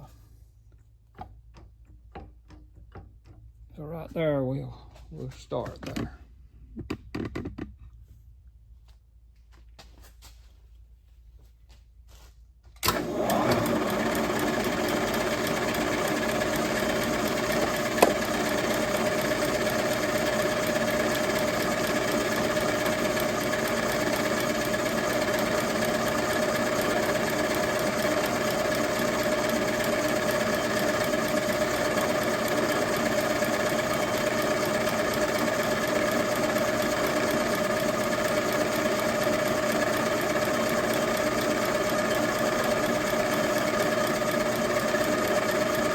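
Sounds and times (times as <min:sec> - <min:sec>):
milling machine spindle humming: 0:12.9 - 0:45.9.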